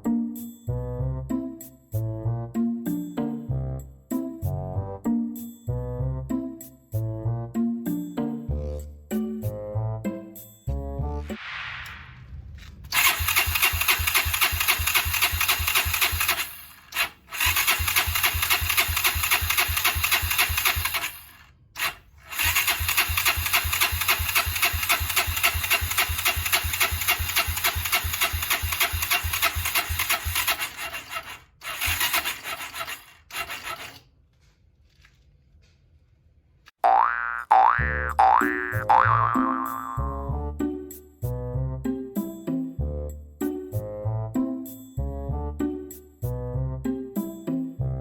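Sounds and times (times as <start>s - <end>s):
motorcycle engine cranking: 12.9s - 34.1s.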